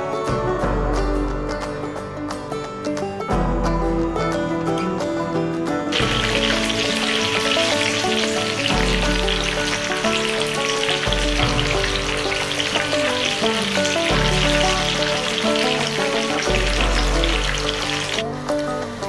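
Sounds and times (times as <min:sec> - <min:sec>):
background music: 0:00.0 - 0:19.0
potato sizzling in oil: 0:05.9 - 0:19.0.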